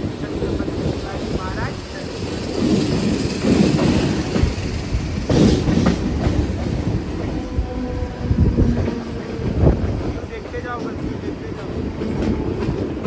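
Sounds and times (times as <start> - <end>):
train rumbling on board: 0.0 - 13.0
wheels clacking over rail joints: 1.6 - 7.5.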